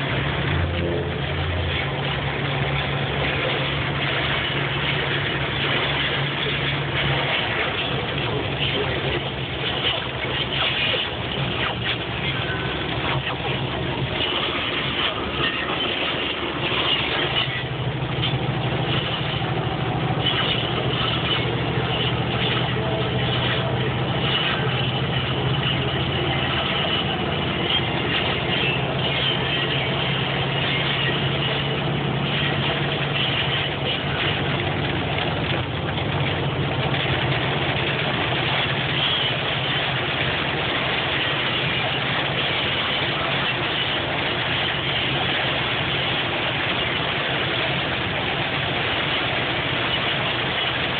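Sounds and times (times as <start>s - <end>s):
engine hum: 0.0s - 50.9s
hail clattering on a vehicle: 1.6s - 50.9s.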